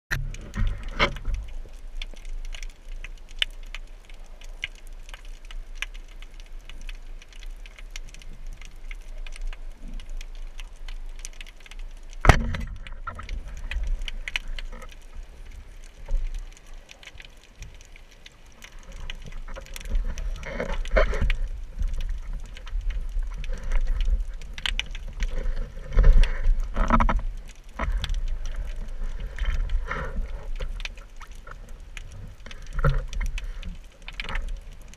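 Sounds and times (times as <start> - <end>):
low underwater rumble: 0.1 - 2.9
sharp clicks and crackles: 0.1 - 34.9.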